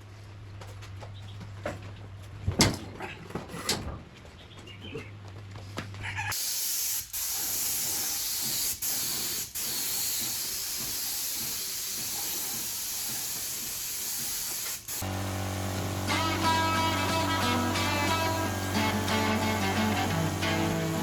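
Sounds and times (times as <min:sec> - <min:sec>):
paint spraying hiss: 0:06.4 - 0:21.0
guitar music: 0:15.0 - 0:21.0.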